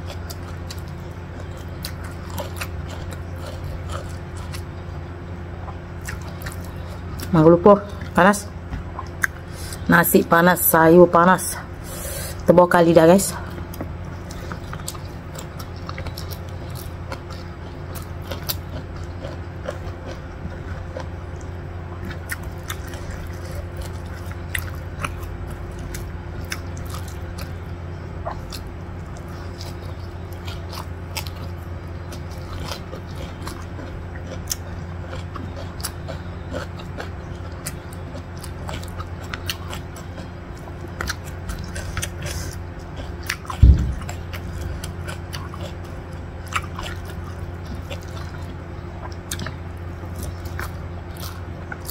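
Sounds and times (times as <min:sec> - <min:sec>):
person chewing: 0:00.0 - 0:07.3, 0:08.9 - 0:09.8, 0:13.5 - 0:51.9
steady low hum: 0:00.0 - 0:51.9
loud low thump: 0:43.6 - 0:44.2.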